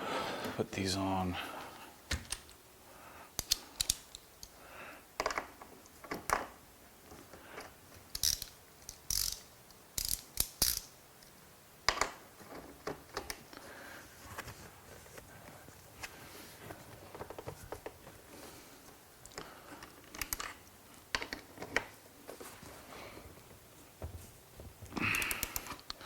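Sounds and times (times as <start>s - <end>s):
metal parts clinking: 8.1s - 10.9s
ratchet wrench clicking: 8.1s - 10.9s, 25.1s - 25.8s.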